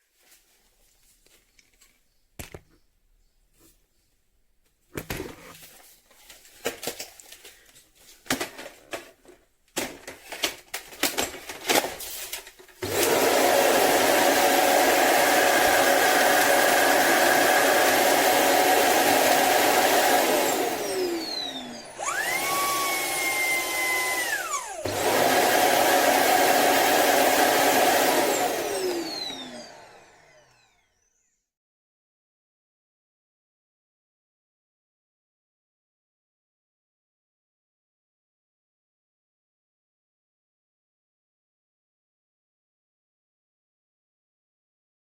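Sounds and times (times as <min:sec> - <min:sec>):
vacuum motor whining: 0:12.8 - 0:31.3.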